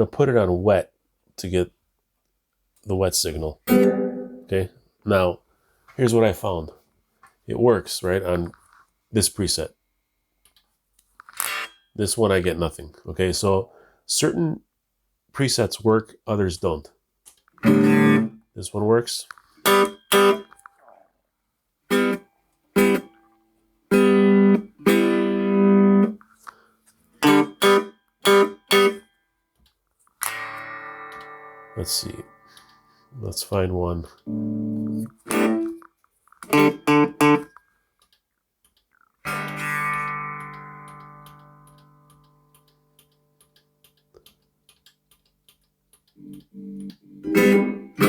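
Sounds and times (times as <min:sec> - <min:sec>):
electric guitar chords: 0:03.7 - 0:04.5, 0:17.6 - 0:18.4, 0:23.9 - 0:26.2, 0:27.2 - 0:29.0, 0:30.2 - 0:32.9, 0:34.2 - 0:35.8, 0:36.5 - 0:37.5, 0:39.3 - 0:42.6, 0:46.2 - 0:48.0.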